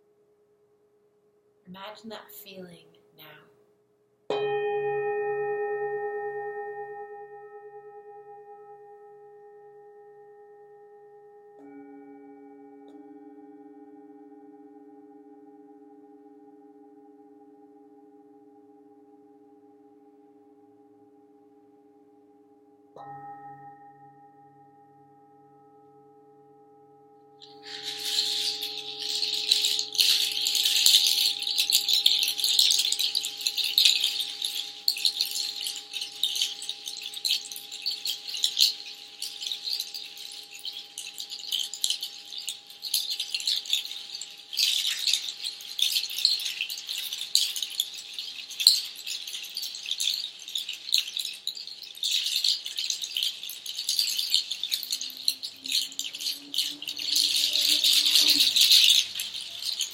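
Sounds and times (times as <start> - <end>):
singing bowl ringing: 4.3 - 59.9
hand shaker rattling: 27.4 - 59.9.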